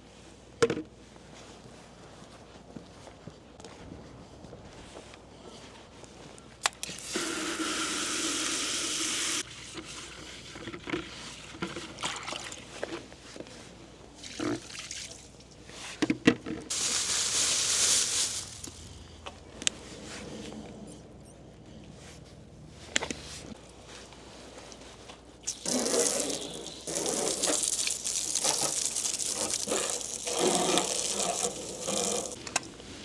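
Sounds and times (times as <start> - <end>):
water running from tap: 7.0 - 9.4, 16.7 - 18.8, 25.5 - 32.4.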